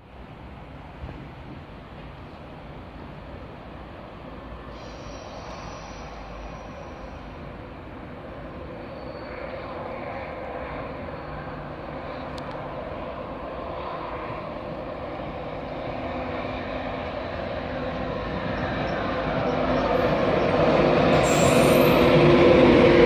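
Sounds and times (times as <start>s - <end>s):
passenger train approaching: 0.0s - 23.0s.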